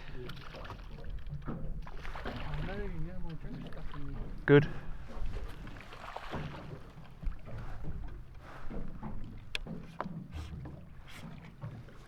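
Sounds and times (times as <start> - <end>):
water noise: 0.0 - 12.0
wind: 0.0 - 12.0.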